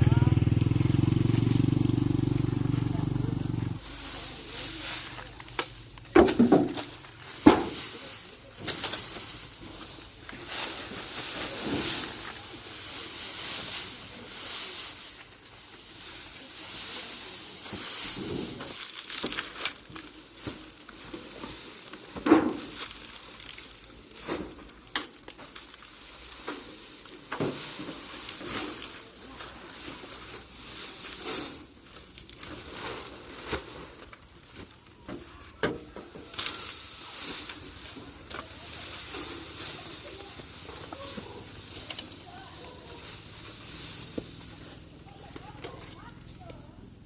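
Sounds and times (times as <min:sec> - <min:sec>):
motorcycle engine running: 0:00.0 - 0:04.5
rustling and swishing: 0:03.8 - 0:35.0, 0:36.0 - 0:46.7.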